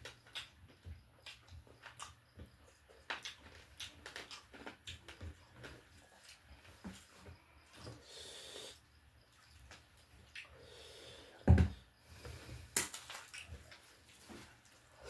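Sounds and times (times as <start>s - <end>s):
person chewing: 0.0s - 8.0s, 9.4s - 10.6s.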